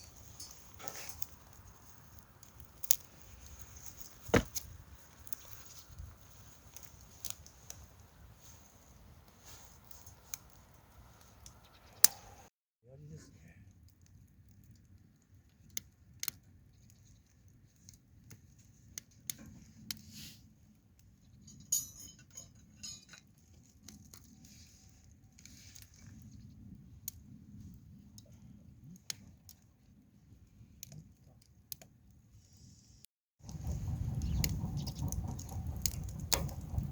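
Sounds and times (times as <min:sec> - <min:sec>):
campfire crackling and popping: 0:00.0 - 0:12.2, 0:33.4 - 0:36.9
low steady rumble: 0:33.5 - 0:36.9.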